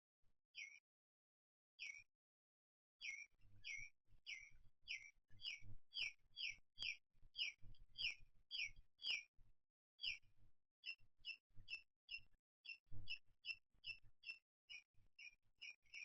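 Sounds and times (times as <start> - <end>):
bird chirping: 3.0 - 9.3, 10.0 - 10.2, 10.8 - 16.0.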